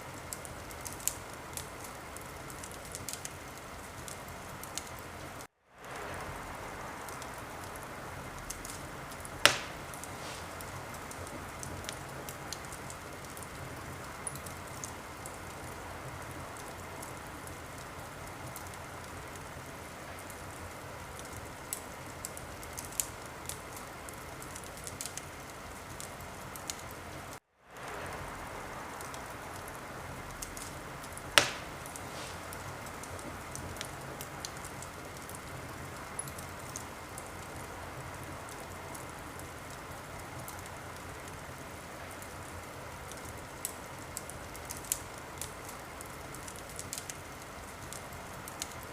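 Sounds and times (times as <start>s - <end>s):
wood fire crackling: 0.0s - 48.9s
sharp pop of fire: 9.4s - 12.0s, 31.4s - 33.9s.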